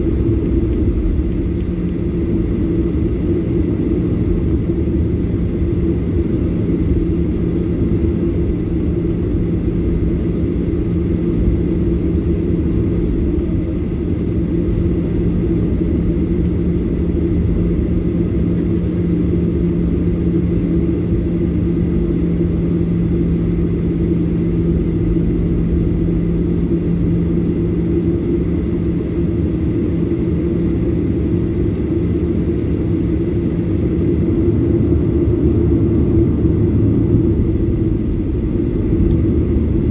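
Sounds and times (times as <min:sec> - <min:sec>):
low hum: 0:00.0 - 0:05.1
jet engine drone in cabin: 0:00.0 - 0:39.9.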